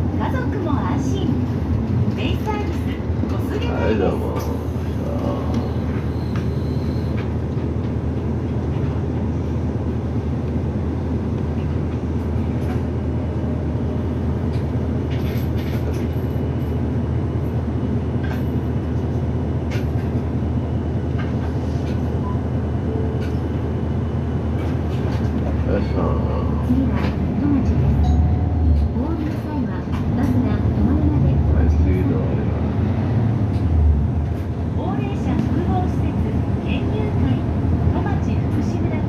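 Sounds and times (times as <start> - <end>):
bus engine drone: 0.0 - 39.0.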